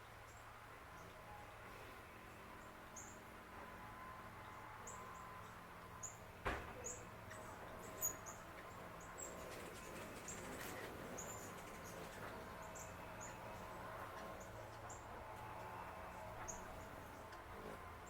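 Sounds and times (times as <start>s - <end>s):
small birds chirping: 4.4s - 17.8s.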